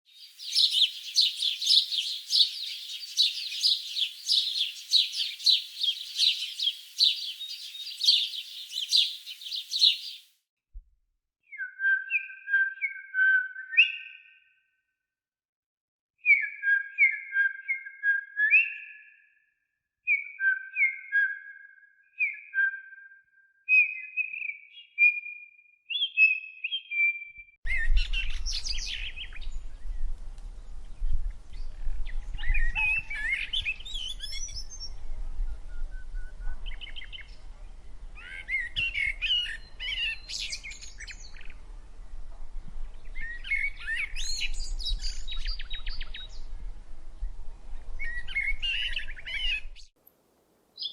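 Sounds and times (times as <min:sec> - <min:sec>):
bird warbling: 0:00.2 - 0:10.2
bird whistling: 0:00.4 - 0:10.2.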